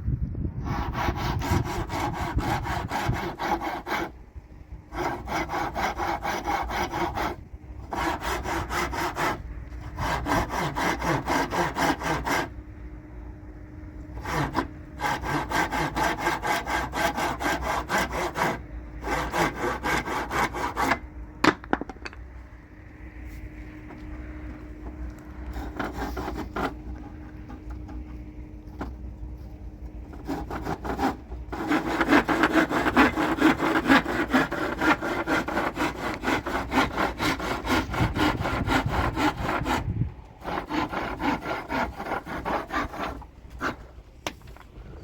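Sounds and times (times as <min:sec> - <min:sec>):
hand saw cutting wood: 0:00.6 - 0:04.2, 0:04.9 - 0:12.6, 0:14.1 - 0:21.0, 0:25.4 - 0:28.9, 0:30.0 - 0:44.0.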